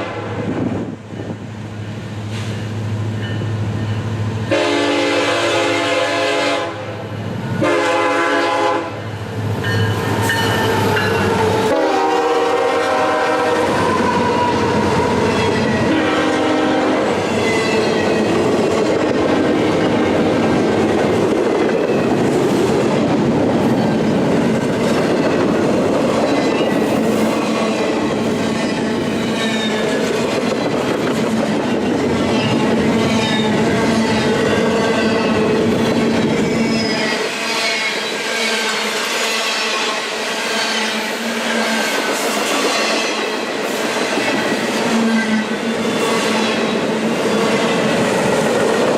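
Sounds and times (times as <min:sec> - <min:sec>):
locomotive horn blasts: 0:00.0 - 0:00.4, 0:04.5 - 0:07.0, 0:07.6 - 0:09.0, 0:10.2 - 0:17.2
train rumbling and clattering: 0:00.0 - 0:48.9.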